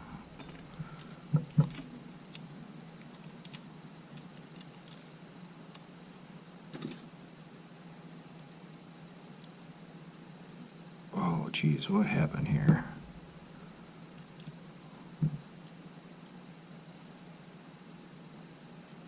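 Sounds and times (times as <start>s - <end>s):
faint steady hum: 0.0s - 19.0s
sharp knocks: 15.2s - 15.4s.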